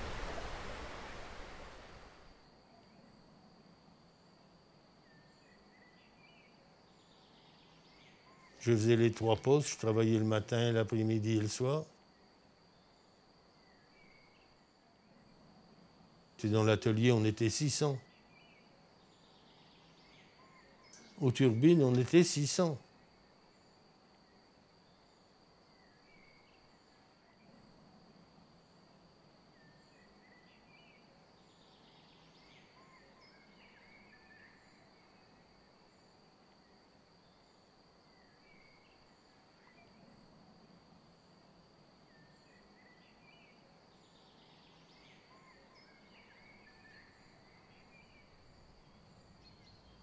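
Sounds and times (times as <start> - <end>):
distant birds chirping: 0.0 - 3.3, 42.0 - 50.0
faint high whine: 0.0 - 7.0.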